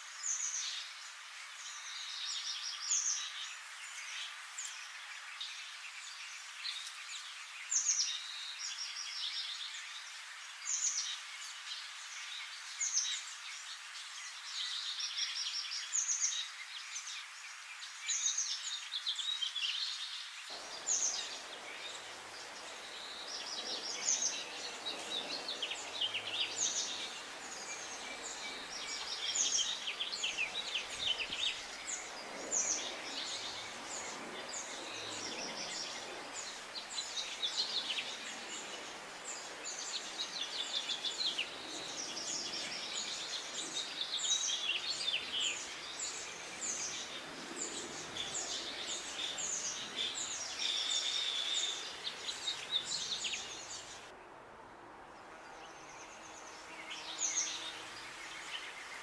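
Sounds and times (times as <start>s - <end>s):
faint background hiss: 0.0s - 59.0s
songbirds chirping and singing: 10.6s - 54.1s, 55.4s - 59.0s.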